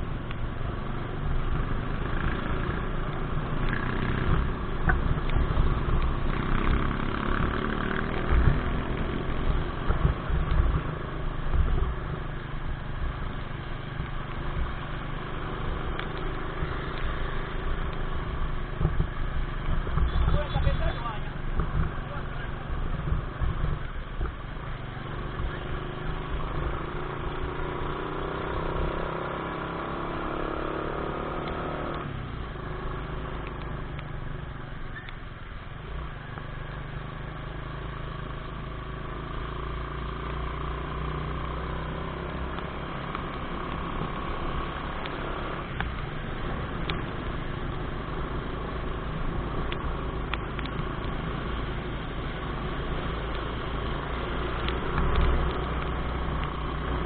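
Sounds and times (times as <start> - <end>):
wind rumble on microphone: 18.0 - 24.8
motorcycle engine running: 35.8 - 57.0.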